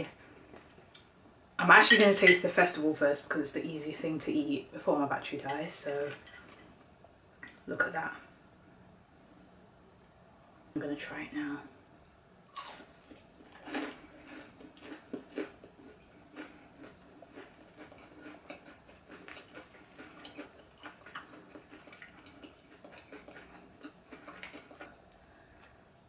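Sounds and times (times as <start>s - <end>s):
crunchy chewing: 12.5s - 25.8s.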